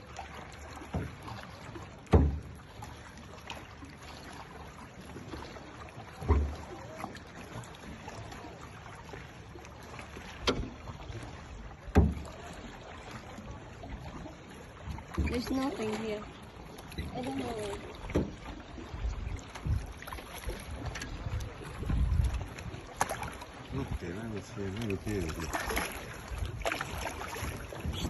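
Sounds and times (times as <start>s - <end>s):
water wash: 0.0s - 28.0s
sharp low knocks: 2.1s - 2.5s.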